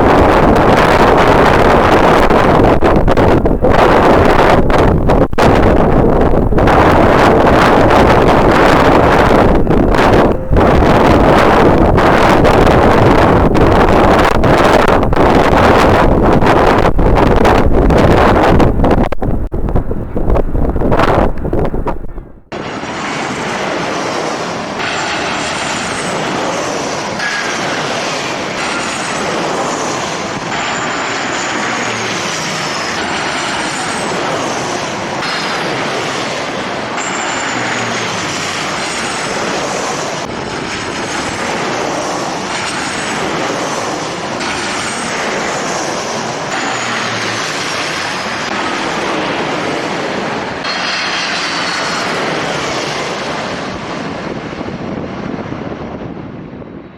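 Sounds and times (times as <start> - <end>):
jet engines rushing: 0.0 - 56.9
high whines falling in pitch: 3.4 - 16.2.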